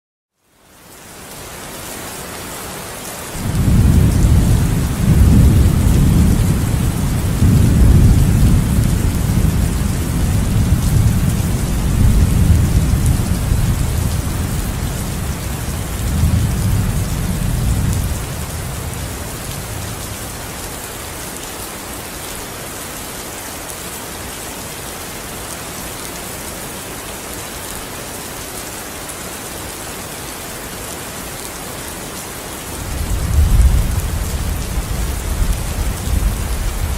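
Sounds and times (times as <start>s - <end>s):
steady rainfall: 0.3s - 36.9s
thunder rumbling: 3.4s - 20.4s, 32.8s - 36.9s.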